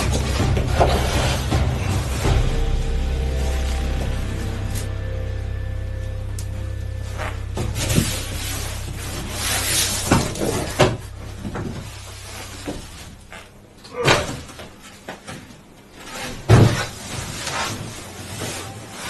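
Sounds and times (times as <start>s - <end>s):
knocks and thumps: 0.0s - 3.1s
rustling: 0.0s - 15.1s, 15.9s - 19.0s.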